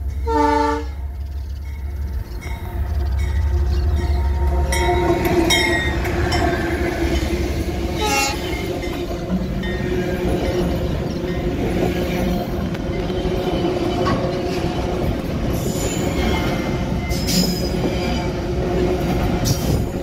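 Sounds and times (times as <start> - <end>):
diesel locomotive engine rumbling: 0.0 - 20.0
locomotive horn blast: 0.2 - 1.1, 7.8 - 8.9
train wheels clicking over rails: 1.0 - 20.0.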